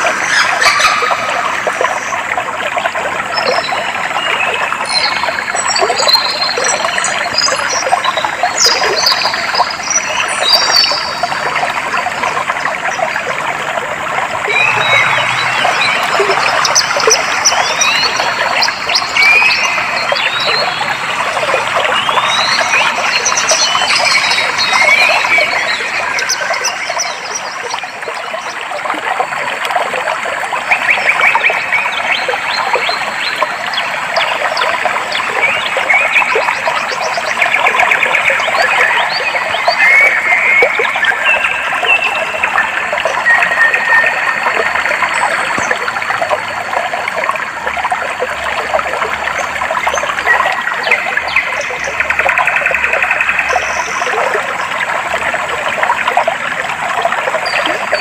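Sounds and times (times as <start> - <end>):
stream water trickling: 0.0 - 58.0
birds chirping and trilling: 0.2 - 2.1, 14.5 - 27.9.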